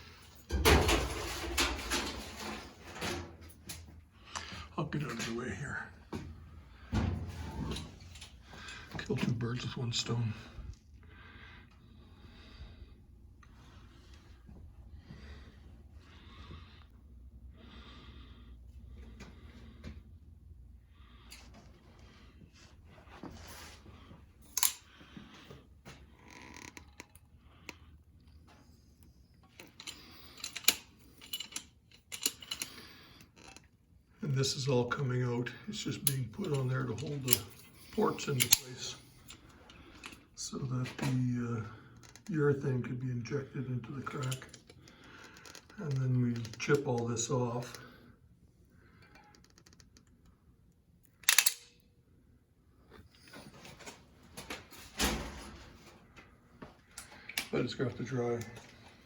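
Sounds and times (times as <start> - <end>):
light tool clicks: 51.2 - 51.7.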